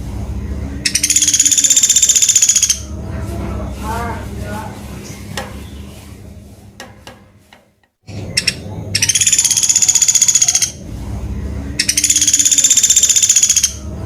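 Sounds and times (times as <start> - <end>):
woodpecker trilling: 0.8 - 2.9, 8.1 - 10.8, 11.8 - 13.9.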